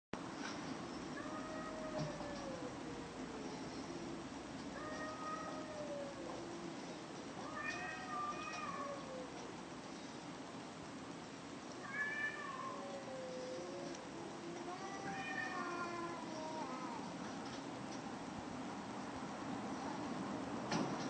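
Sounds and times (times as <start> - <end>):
cats yowling: 1.2 - 9.5, 11.8 - 17.1.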